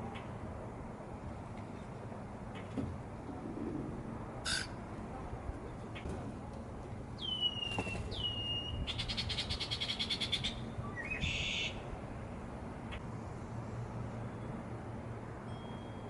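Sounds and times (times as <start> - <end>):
harsh bird call: 4.5 - 4.7
down-slurred bird whistles: 7.2 - 11.7.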